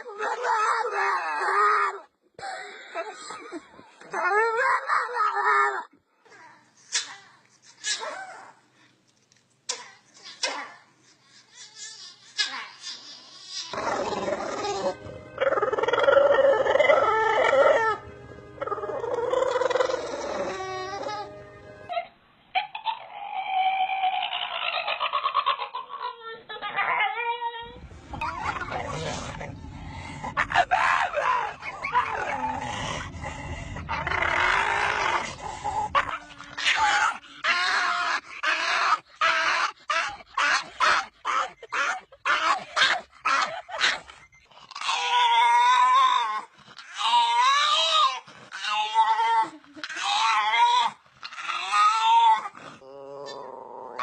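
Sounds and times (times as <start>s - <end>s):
dog howling wavering calls: 13.7s - 22.0s, 26.8s - 42.6s.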